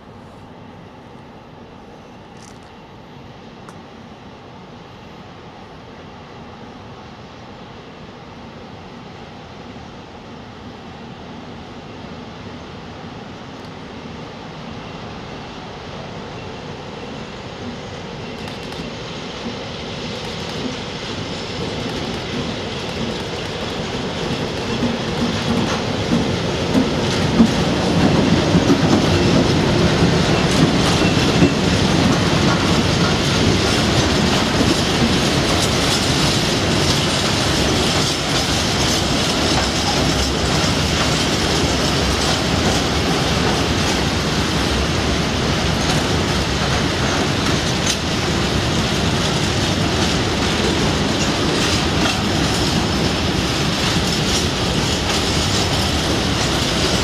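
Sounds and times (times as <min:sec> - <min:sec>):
diesel locomotive engine passing: 0:00.0 - 0:57.0
freight wagons rumbling: 0:21.6 - 0:57.0.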